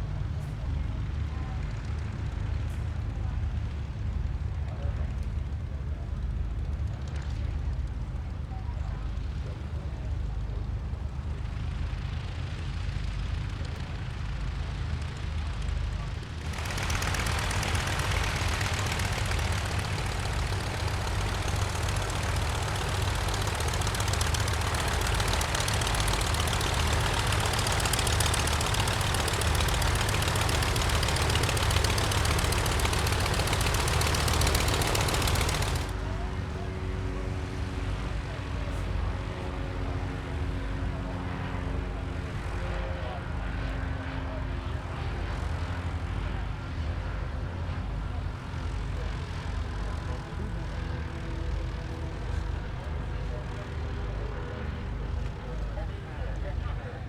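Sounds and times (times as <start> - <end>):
light aircraft propeller engine: 0.0 - 57.0.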